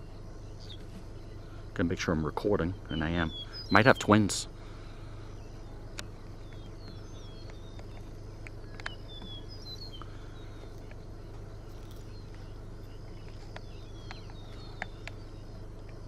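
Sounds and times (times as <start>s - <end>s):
low hum: 0.0s - 16.0s
small birds chirping: 0.0s - 16.0s
sharp clicks: 5.9s - 12.4s, 13.2s - 16.0s.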